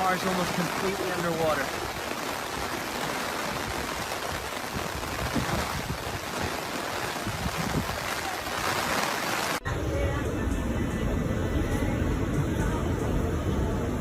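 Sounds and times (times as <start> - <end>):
floodwater rushing: 0.0 - 9.6.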